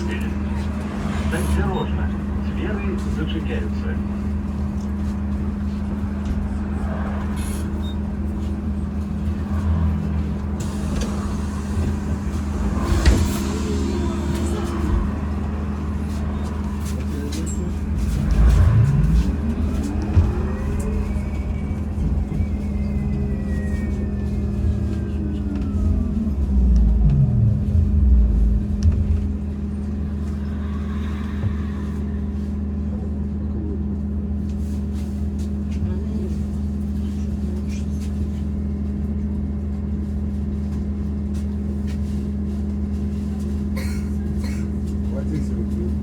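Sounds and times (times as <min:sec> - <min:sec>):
road rumble: 0:00.0 - 0:46.0
low hum: 0:04.0 - 0:34.6.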